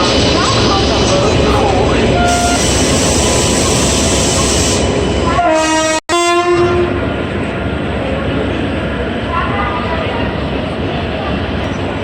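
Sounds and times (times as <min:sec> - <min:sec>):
train rumbling past: 0:00.0 - 0:12.0
locomotive horn: 0:02.1 - 0:02.9, 0:05.3 - 0:07.0.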